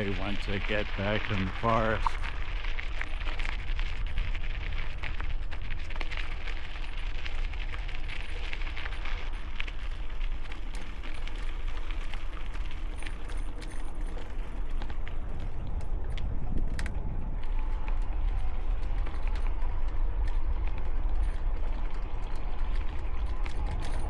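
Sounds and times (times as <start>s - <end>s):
small crackles and clicks: 0.0s - 24.0s
wind buffeting a microphone: 13.9s - 24.0s.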